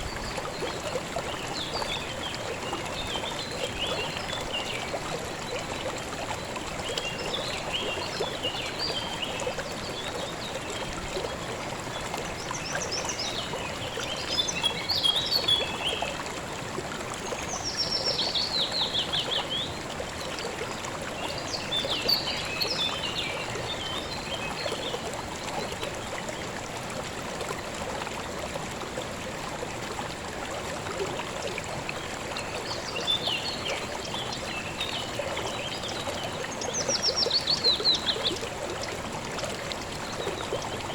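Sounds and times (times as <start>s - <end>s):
river water flowing: 0.0s - 40.9s
small birds singing: 11.9s - 16.2s, 20.4s - 25.1s, 32.4s - 38.5s.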